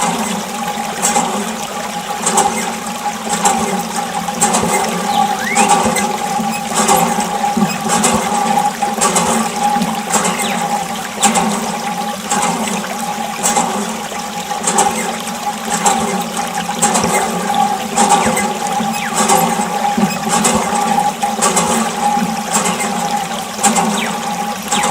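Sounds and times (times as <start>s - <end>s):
electric water pump whining: 0.0s - 24.9s
water spraying and splashing: 0.0s - 24.9s.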